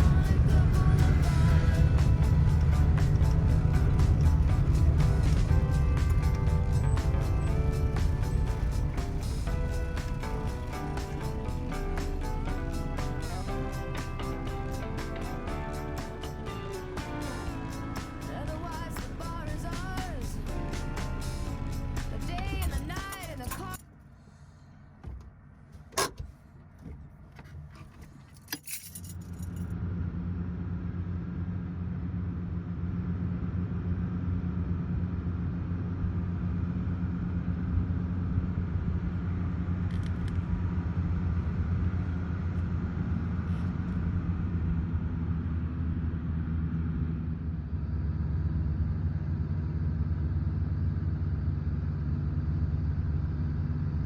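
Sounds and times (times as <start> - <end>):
car engine starting and running: 0.0 - 54.0
keys rattling: 21.4 - 23.8, 27.8 - 29.7.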